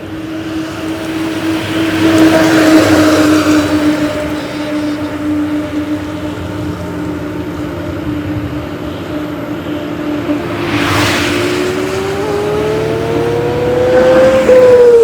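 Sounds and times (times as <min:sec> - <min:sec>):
heavy vehicle engine revving: 0:10.2 - 0:15.0.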